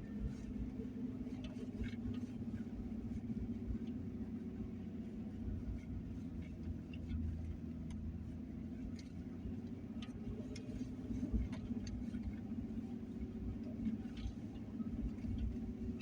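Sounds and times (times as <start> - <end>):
road rumble: 0.0 - 16.0
truck engine hum: 0.0 - 16.0
light ticks: 8.8 - 12.4.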